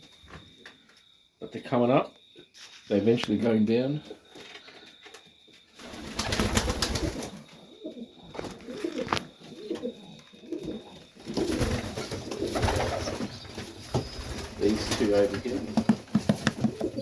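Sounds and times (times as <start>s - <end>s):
birds rustling and clicking: 4.2s - 7.6s, 8.2s - 17.0s
pigeons cooing: 5.9s - 17.0s.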